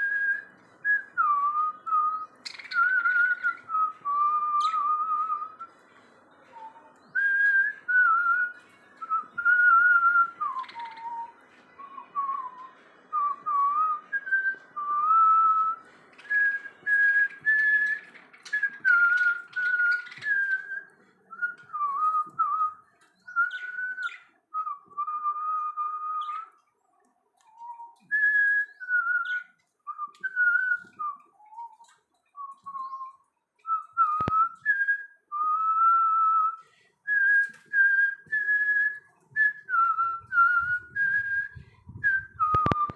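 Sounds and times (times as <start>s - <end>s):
bird chirps: 0.0s - 7.6s, 8.5s - 12.7s, 15.8s - 24.4s, 27.5s - 34.6s
person whistling: 33.7s - 42.9s.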